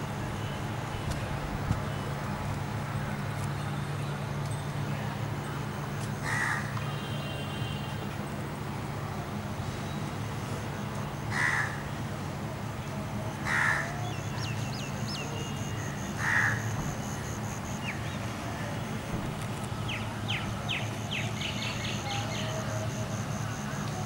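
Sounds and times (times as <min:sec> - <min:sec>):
loud bird calls: 0:13.4 - 0:18.3.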